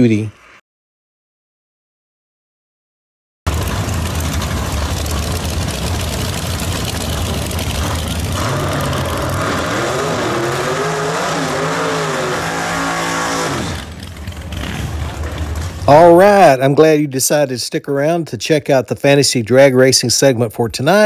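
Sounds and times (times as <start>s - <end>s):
racing engine revving: 3.5s - 15.9s.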